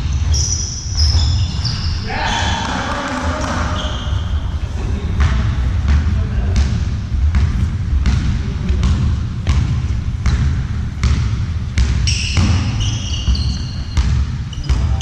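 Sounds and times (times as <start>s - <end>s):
shoes squeaking on floor: 0.0s - 4.6s, 12.0s - 15.0s
heavy low rumble: 1.9s - 12.0s
ball bouncing: 5.1s - 15.0s.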